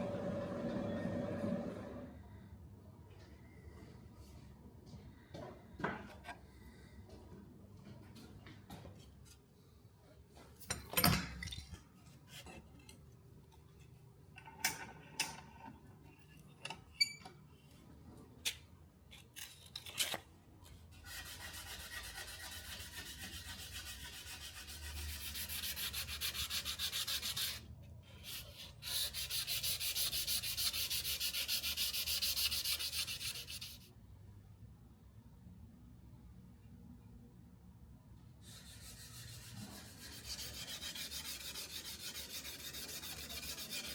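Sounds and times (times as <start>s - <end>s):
hand sanding strokes: 21.0s - 33.9s, 38.4s - 43.9s.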